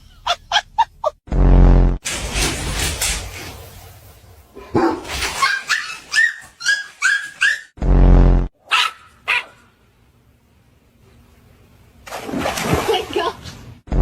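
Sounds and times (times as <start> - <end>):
dogs yapping: 4.8 - 7.8.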